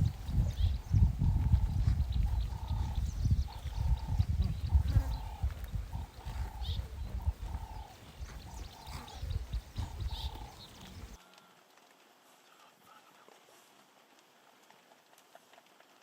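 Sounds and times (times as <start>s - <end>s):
animal calls: 0.0s - 11.2s.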